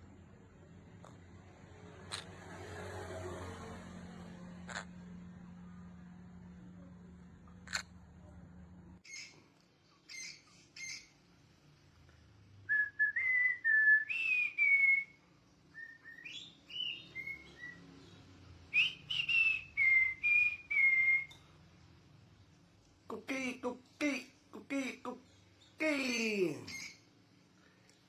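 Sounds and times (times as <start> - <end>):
parrot chirps: 2.0 - 2.4, 4.7 - 5.0, 7.6 - 8.0, 9.0 - 9.4, 10.0 - 11.3, 15.7 - 21.5, 25.2 - 27.1
parrot whistling: 10.1 - 11.1, 12.7 - 17.9, 18.7 - 21.5.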